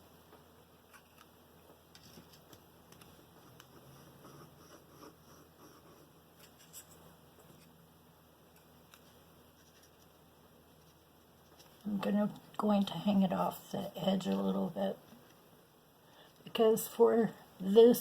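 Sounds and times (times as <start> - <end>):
paper and card rustling: 9.0 - 10.2.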